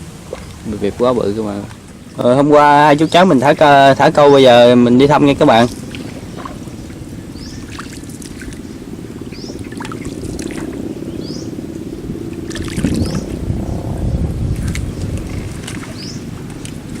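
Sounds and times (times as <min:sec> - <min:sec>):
small boat rumbling: 0:00.0 - 0:17.0
water noise: 0:00.0 - 0:17.0
bird chirping: 0:05.5 - 0:16.8.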